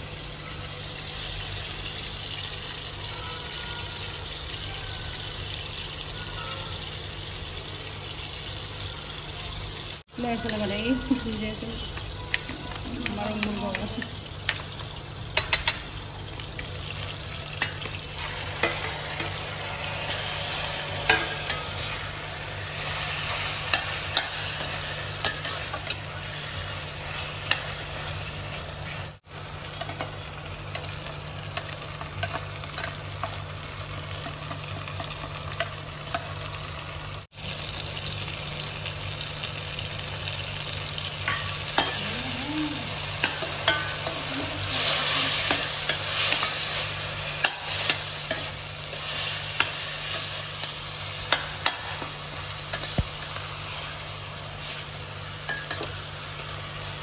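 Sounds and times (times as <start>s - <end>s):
food sizzling in oil: 0.0s - 57.0s
spatula scraping a metal pan: 17.6s - 29.1s.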